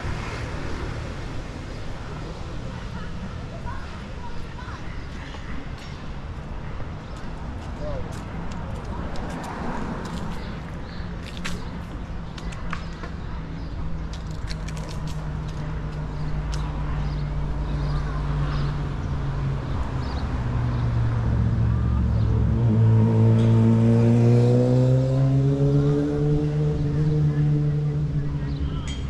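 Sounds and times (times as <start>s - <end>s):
vehicle engine accelerating: 20.3s - 28.5s.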